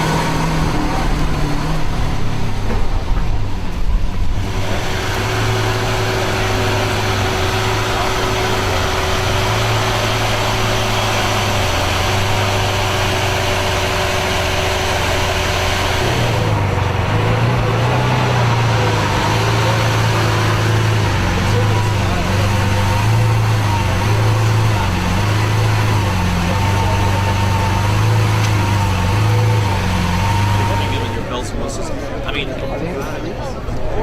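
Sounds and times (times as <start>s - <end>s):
car engine idling: 0.0s - 31.8s.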